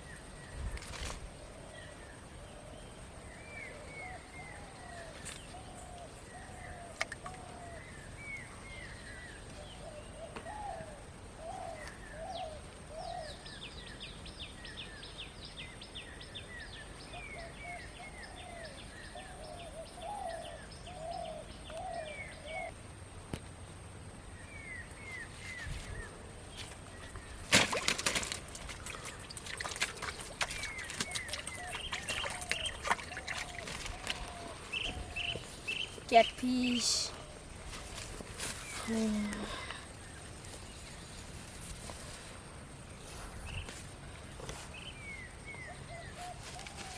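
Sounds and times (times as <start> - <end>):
birds calling and chirping: 0.0 - 22.8, 24.4 - 46.9
clicks and rustles: 26.6 - 35.8
fast dry rattling bird call: 27.3 - 36.8.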